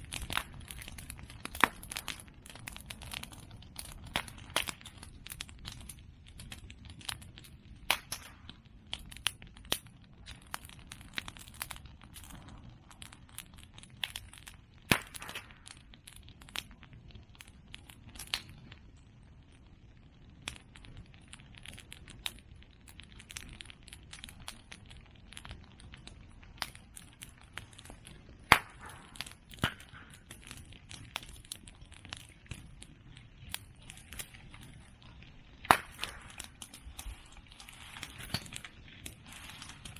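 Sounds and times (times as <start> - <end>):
bonfire crackling: 0.0 - 39.9
pops and snaps: 7.8 - 12.5, 14.9 - 15.9, 26.6 - 32.8, 35.6 - 39.9.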